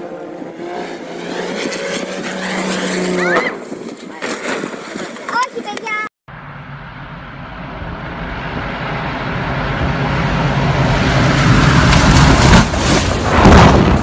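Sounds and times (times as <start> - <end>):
aircraft engine passing by: 0.0 - 3.4, 6.3 - 13.1.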